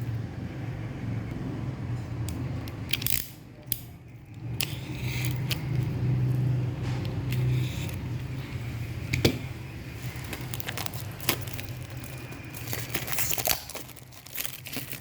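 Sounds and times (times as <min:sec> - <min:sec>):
steady low hum: 0:00.0 - 0:15.0
scissors snipping packaging: 0:02.7 - 0:06.4, 0:10.0 - 0:15.0
packaging crinkling: 0:10.0 - 0:15.0.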